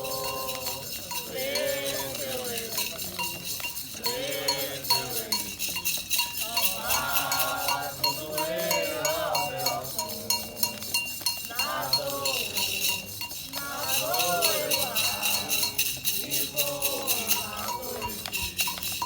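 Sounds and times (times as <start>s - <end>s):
metal bell struck in rhythm: 0.0s - 19.0s
percussion: 0.0s - 19.0s
voices singing a chant: 0.0s - 19.0s.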